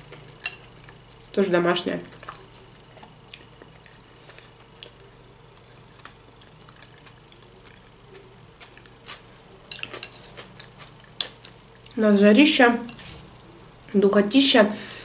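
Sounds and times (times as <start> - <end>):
person chewing salad: 0.0 - 1.4, 2.0 - 12.0, 12.9 - 13.5.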